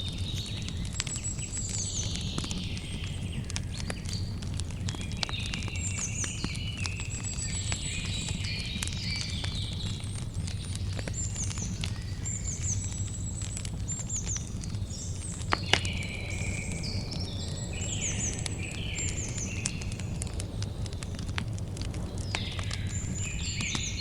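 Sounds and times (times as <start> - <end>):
birds chirping: 0.0 - 24.0
campfire crackling: 0.0 - 24.0.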